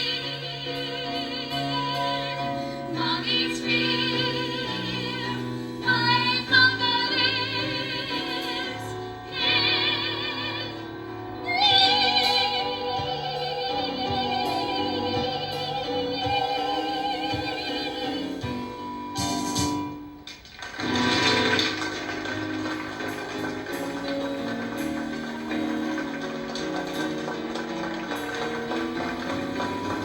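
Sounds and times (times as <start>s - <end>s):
woman singing opera: 0.0s - 18.7s
instrumental accompaniment: 0.0s - 30.0s.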